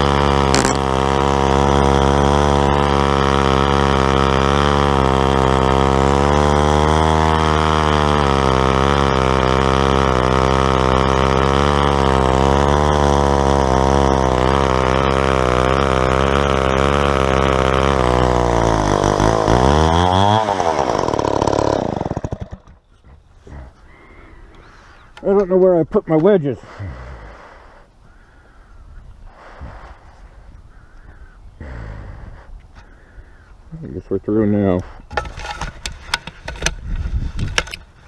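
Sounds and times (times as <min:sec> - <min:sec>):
chainsaw milling a log: 0:00.0 - 0:23.8, 0:34.5 - 0:38.0.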